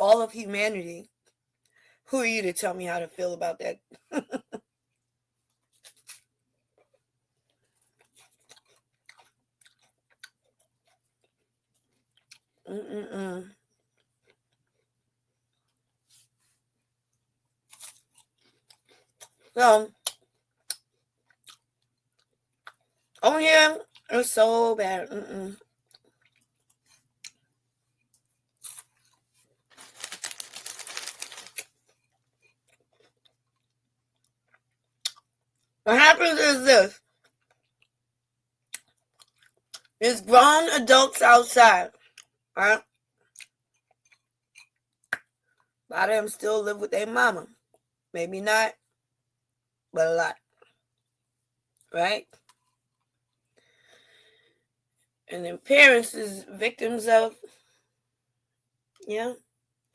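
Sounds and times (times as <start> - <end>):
faint chewing: 4.8 - 12.8, 13.5 - 23.2, 25.6 - 35.8, 37.0 - 38.0, 38.6 - 40.0, 41.9 - 45.8.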